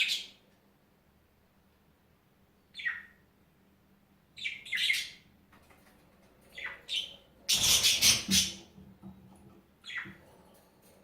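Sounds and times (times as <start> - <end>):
bird chirping: 0.0 - 0.4, 2.6 - 3.4, 4.3 - 5.4, 6.5 - 10.4.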